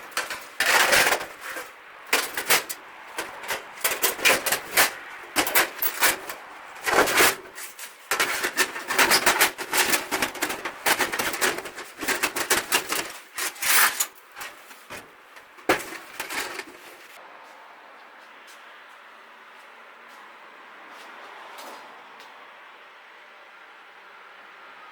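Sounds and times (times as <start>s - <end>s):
hard objects clattering: 0.0s - 17.2s.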